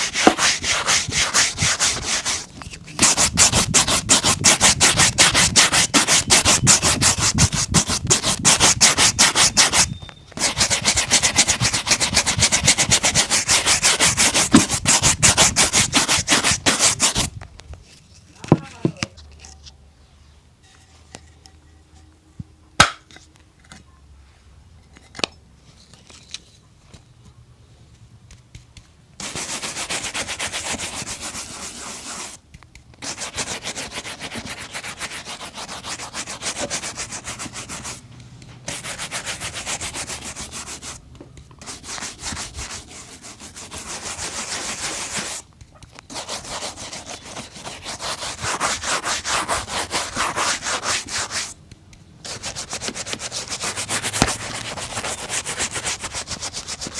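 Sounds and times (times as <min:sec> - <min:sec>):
shoe brush scrubbing: 0:00.0 - 0:17.3, 0:29.2 - 0:32.4, 0:33.0 - 0:38.0, 0:38.7 - 0:41.0, 0:41.6 - 0:45.4, 0:46.1 - 0:51.6, 0:52.3 - 0:56.9.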